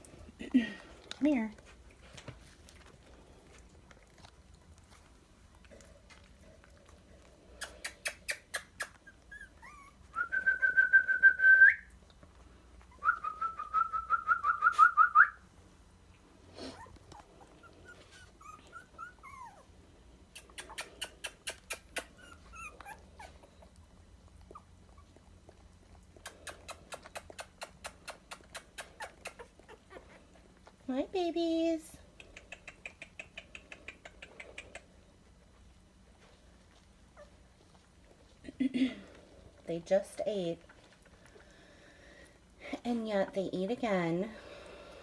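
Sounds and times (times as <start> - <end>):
dog whimpering: 7.6 - 10.6, 16.6 - 19.7, 20.4 - 23.8, 28.4 - 30.4, 37.1 - 37.5
dog whining: 7.6 - 11.0, 16.6 - 19.7, 20.4 - 23.8, 26.2 - 30.3, 37.1 - 37.5.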